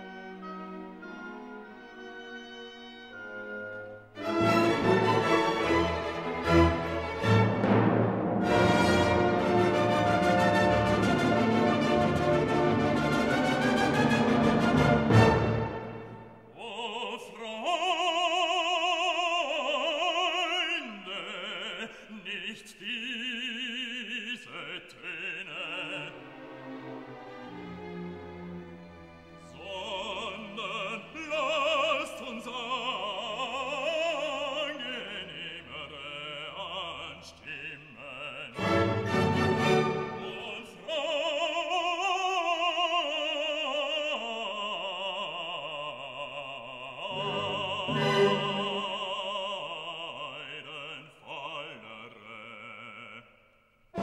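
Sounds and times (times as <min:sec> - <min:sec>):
instrumental accompaniment: 0:00.0 - 0:16.5, 0:47.1 - 0:48.9
operatic singing: 0:00.0 - 0:53.4.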